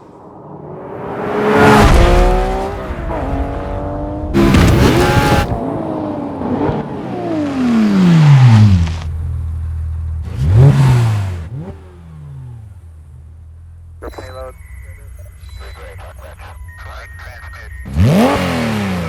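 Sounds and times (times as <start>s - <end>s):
car engine revving: 0.2s - 14.0s, 17.8s - 19.0s.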